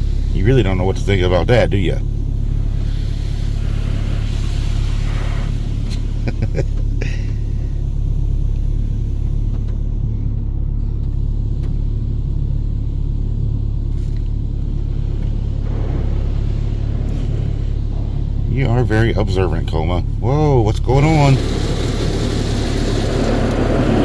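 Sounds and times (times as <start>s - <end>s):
car wash machinery rumbling: 0.0s - 24.0s
rushing spray: 21.0s - 24.0s.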